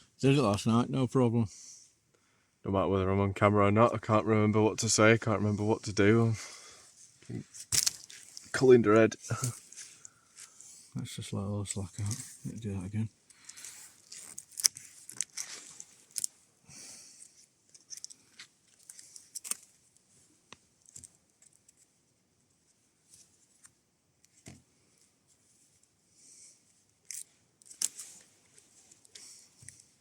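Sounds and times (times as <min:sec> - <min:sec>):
cord and fabric rustling: 0:04.9 - 0:30.0.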